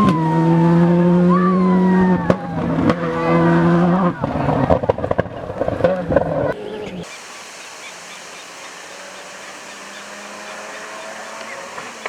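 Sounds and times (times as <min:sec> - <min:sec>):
rally car engine: 0:00.0 - 0:06.5, 0:08.2 - 0:12.0
steady hiss: 0:07.0 - 0:12.0.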